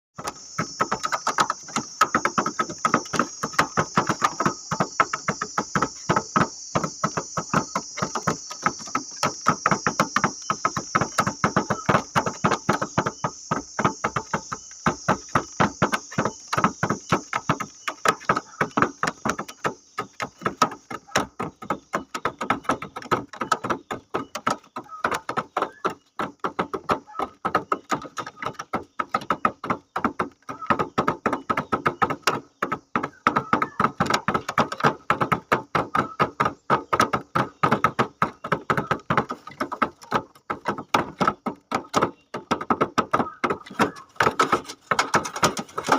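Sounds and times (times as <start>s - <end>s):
bird pecking hard surface: 6.8s - 19.3s, 43.2s - 45.9s.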